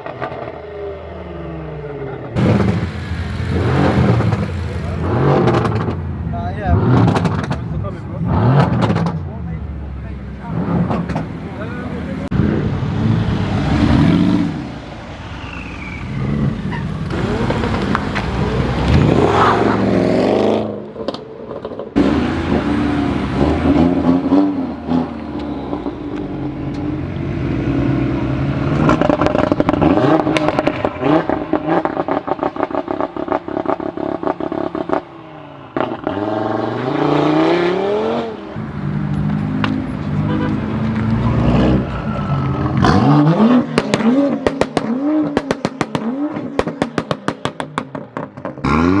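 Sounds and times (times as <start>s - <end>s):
car engines revving: 0.0s - 49.0s
exhaust pops and crackles: 2.4s - 6.0s, 6.9s - 7.8s, 17.0s - 19.2s, 43.7s - 48.7s.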